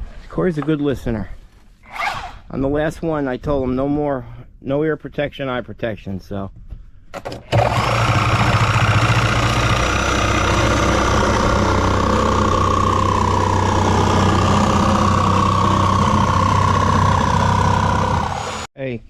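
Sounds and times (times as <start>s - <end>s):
engine running steadily: 7.5s - 18.7s
high wavering whine: 8.6s - 18.7s.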